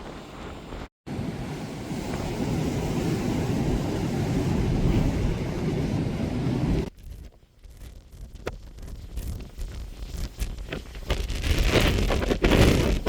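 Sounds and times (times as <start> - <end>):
sea rushing: 0.0 - 6.8
ship noise: 0.0 - 6.9
wind on microphone: 0.0 - 13.0.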